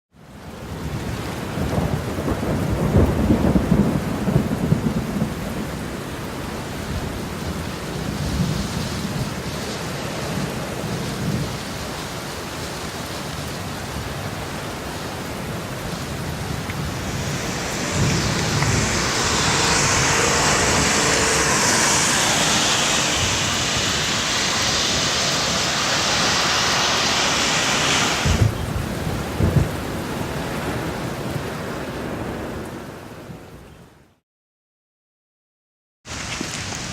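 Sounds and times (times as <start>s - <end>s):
steady rain: 0.2s - 34.2s, 36.1s - 36.9s
thunder rumbling: 1.6s - 9.4s, 13.8s - 31.0s
loud hiss: 15.7s - 29.2s.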